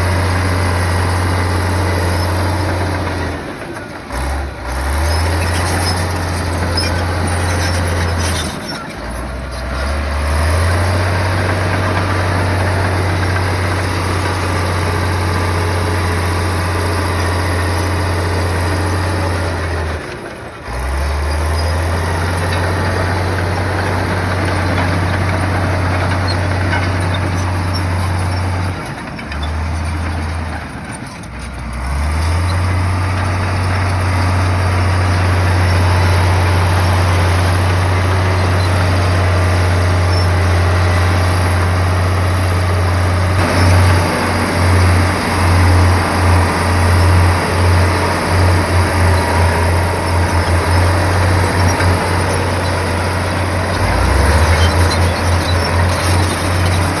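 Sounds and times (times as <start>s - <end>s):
heavy diesel machinery engine drone: 0.0s - 57.0s.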